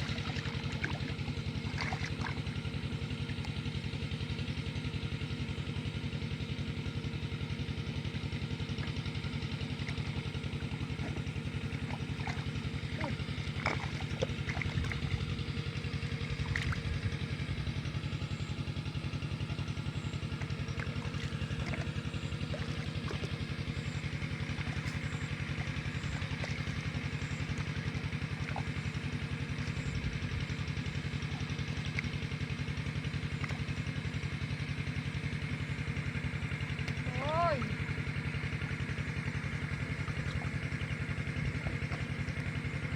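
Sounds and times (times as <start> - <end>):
small engine running: 0.0 - 42.9.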